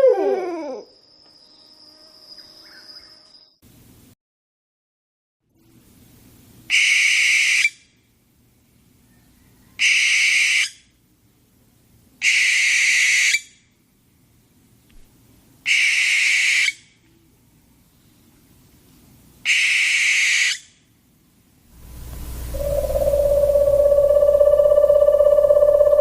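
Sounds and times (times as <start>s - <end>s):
owl screeching: 9.8s - 10.8s, 12.2s - 13.5s, 15.7s - 16.8s, 19.5s - 20.7s, 22.0s - 26.0s.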